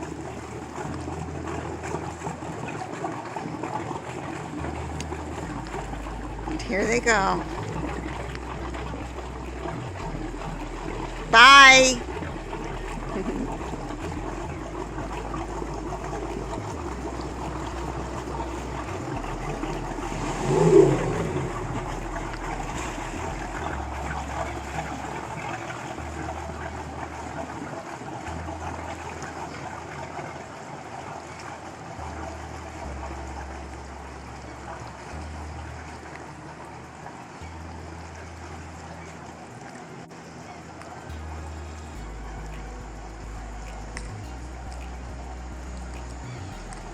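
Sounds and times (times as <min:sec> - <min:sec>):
boat engines running: 0:00.0 - 0:46.9
water sounds: 0:00.0 - 0:46.9
short pitched sound: 0:04.6 - 0:27.2.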